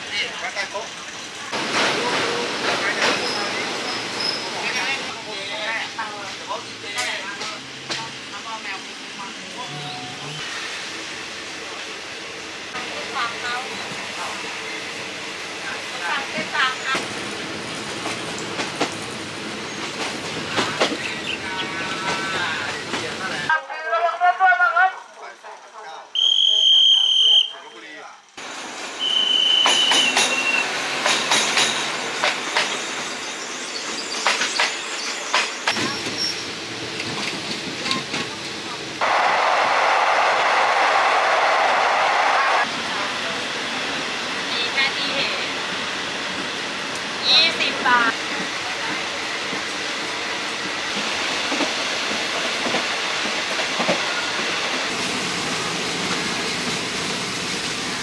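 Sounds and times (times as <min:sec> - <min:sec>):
train rolling rumble: 0:00.0 - 0:23.5, 0:28.2 - 0:58.0
high wheel squeal: 0:03.1 - 0:04.8
wheels clacking over rail joints: 0:29.4 - 0:33.0.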